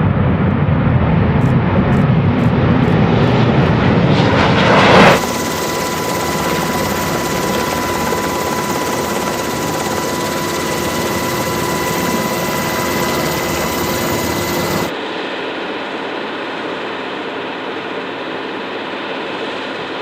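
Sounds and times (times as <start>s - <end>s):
high engine whine: 0.0s - 15.0s
jet engines running: 0.0s - 15.1s.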